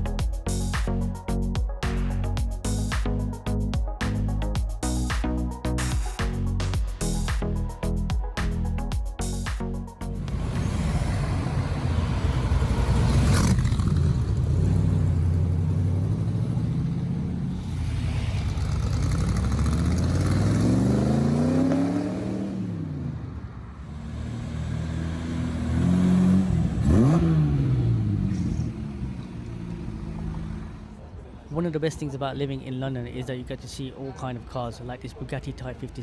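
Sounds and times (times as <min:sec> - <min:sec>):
car engine revving: 0:10.0 - 0:31.1.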